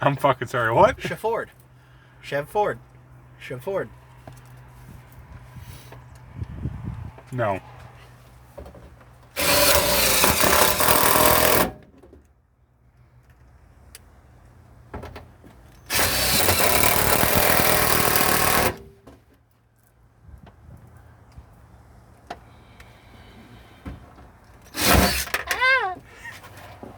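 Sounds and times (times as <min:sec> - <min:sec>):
power drill driving screws into metal: 0:09.4 - 0:11.8, 0:15.8 - 0:19.1, 0:24.7 - 0:25.8.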